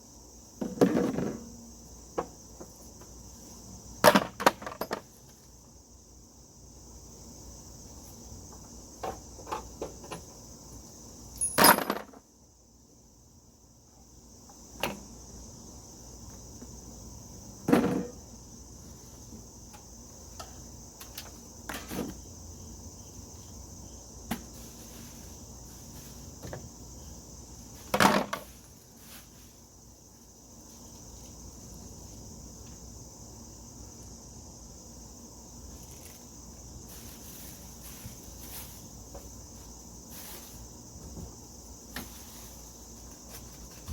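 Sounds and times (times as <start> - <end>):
crickets chirring: 0.0 - 43.9
sharp knocks and thuds: 17.6 - 18.2.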